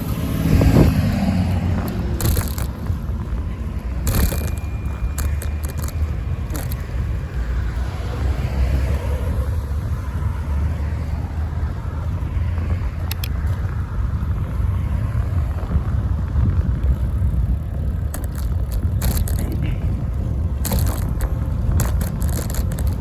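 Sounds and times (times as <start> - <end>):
sharp clicks: 0.0 - 7.1, 13.0 - 13.7, 18.0 - 19.8, 20.5 - 23.0
passing traffic: 0.0 - 23.0
wind and road noise: 0.0 - 23.0.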